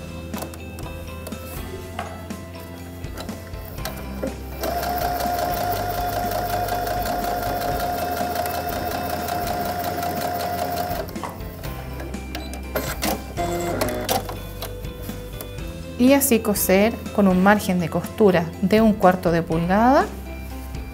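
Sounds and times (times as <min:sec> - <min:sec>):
sewing machine stitching: 0:04.6 - 0:11.2.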